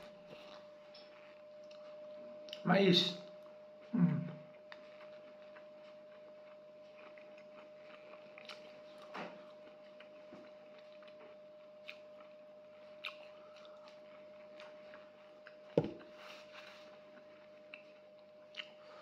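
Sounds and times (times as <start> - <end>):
chewing corn kernels: 4.5 - 19.0
tin thumping on table: 15.8 - 16.0.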